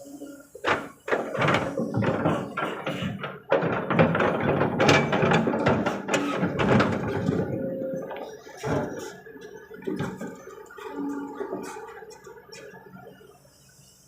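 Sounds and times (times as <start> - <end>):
excavator engine droning: 0.0 - 14.0
knocks and clatter: 0.6 - 12.7.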